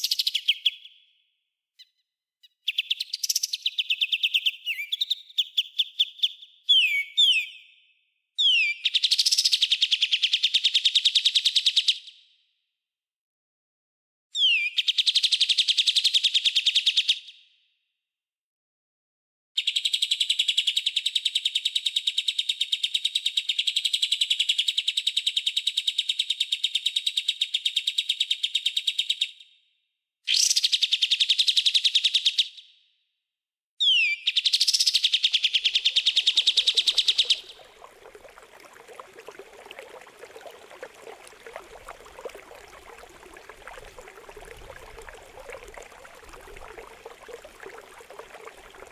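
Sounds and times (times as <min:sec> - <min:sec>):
trickling water: 0:35.4 - 0:48.9.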